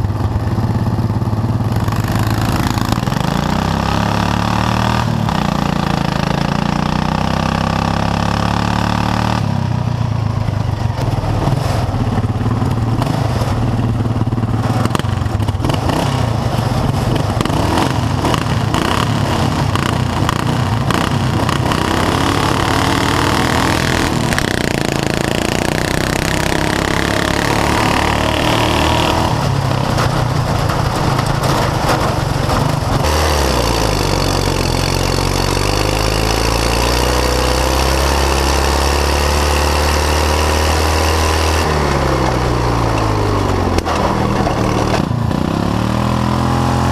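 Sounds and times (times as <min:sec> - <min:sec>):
lawn tractor engines running: 0:00.0 - 0:46.9.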